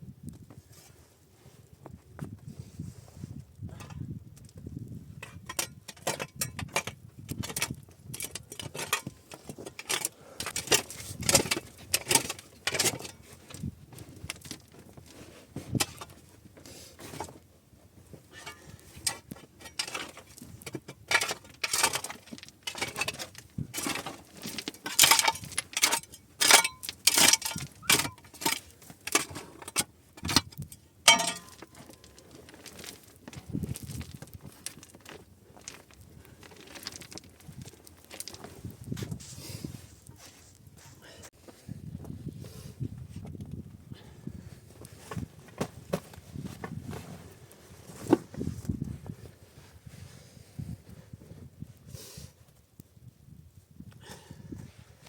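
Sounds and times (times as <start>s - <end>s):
hard objects clinking and knocking: 18.4s - 38.4s.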